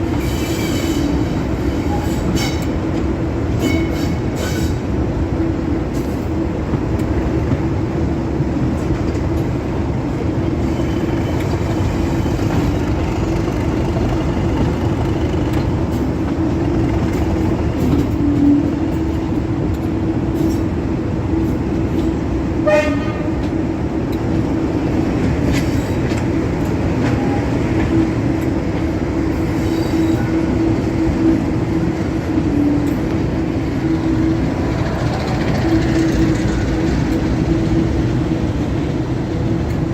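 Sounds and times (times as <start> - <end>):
diesel train engine drone: 0.0 - 39.9
train horn toot: 22.6 - 23.5.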